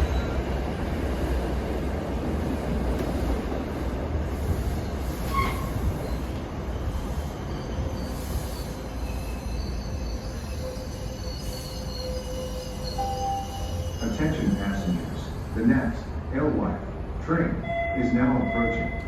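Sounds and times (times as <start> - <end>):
train rumbling on rails: 0.0 - 19.0
high wheel squeal: 5.1 - 15.4.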